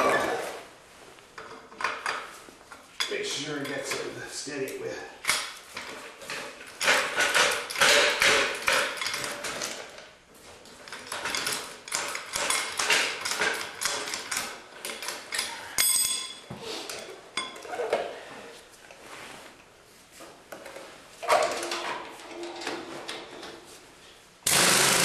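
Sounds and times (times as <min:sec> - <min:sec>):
ringing metallic clink: 0:15.8 - 0:16.4.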